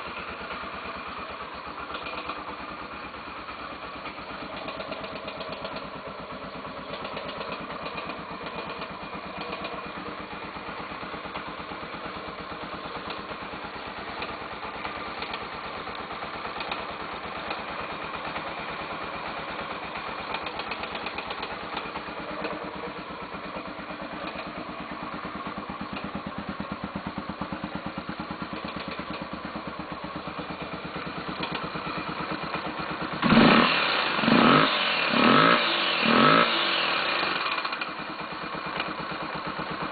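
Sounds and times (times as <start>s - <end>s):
motorcycle engine idling: 0.0s - 39.9s
engine valve ticking: 0.2s - 39.9s
engine revving in blips: 33.2s - 37.7s.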